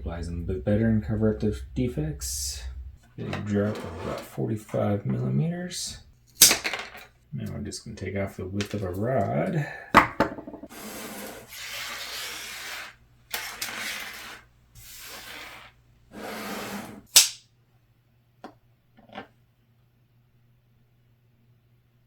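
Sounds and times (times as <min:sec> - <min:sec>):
duct tape pulled off roll: 0:17.1 - 0:17.4
tape snapping: 0:17.2 - 0:17.4.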